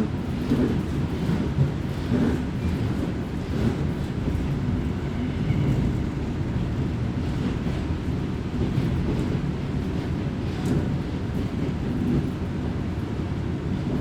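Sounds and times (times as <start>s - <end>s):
railcar engine and wheels rumbling: 0.0s - 14.0s.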